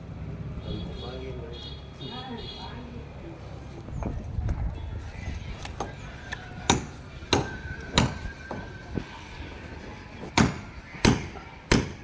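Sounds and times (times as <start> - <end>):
sharp knocks: 10.3 - 12.0.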